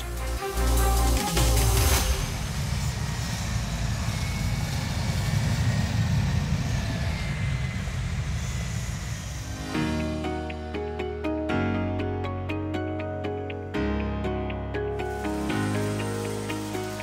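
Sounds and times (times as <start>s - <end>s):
rush of noise: 0.0s - 10.8s, 14.9s - 17.0s.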